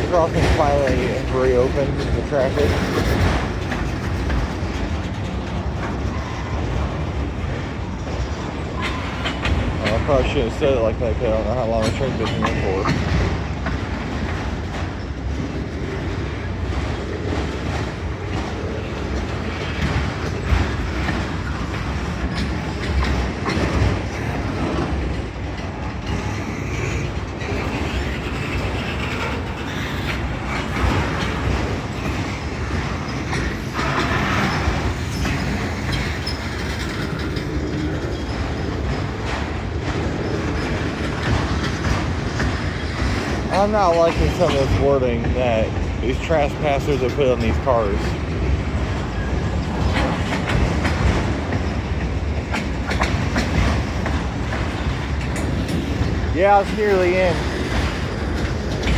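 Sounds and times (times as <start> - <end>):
freight train wheels on rails: 0.0 - 58.9.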